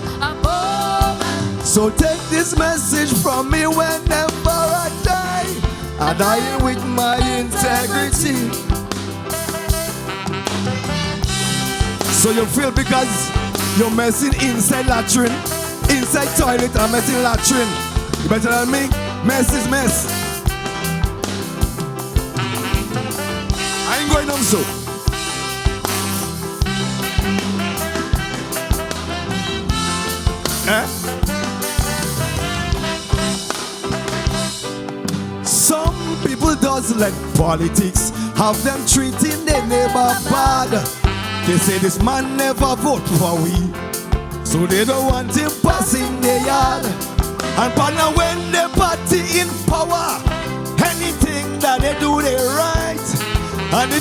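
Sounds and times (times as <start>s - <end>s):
calypso band playing: 0.0s - 54.0s
drum hits: 0.5s - 52.0s
rising slide of notes: 18.8s - 35.3s.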